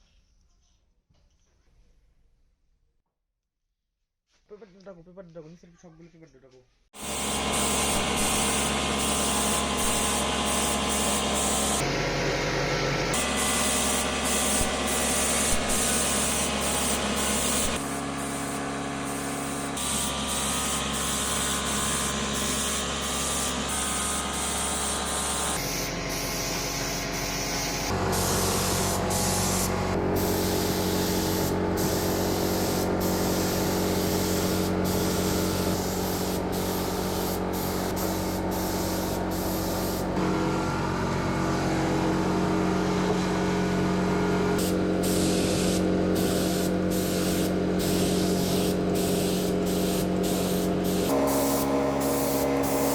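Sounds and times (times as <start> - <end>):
paint spray hiss: 7.0 - 11.9, 13.2 - 40.2, 44.6 - 52.9.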